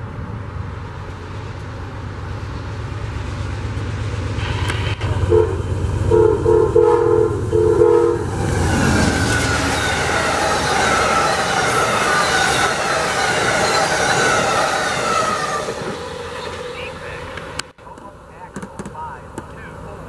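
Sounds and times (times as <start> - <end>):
train cars rushing past: 0.0 - 18.3
locomotive engine rumbling: 0.0 - 20.0
multi-chime train horn: 5.3 - 8.2.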